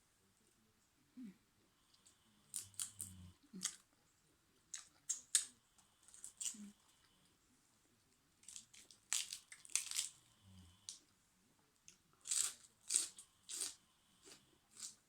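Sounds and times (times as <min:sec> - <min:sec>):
person chewing crunchy food: 0:02.5 - 0:03.8, 0:08.4 - 0:11.0, 0:12.2 - 0:15.0.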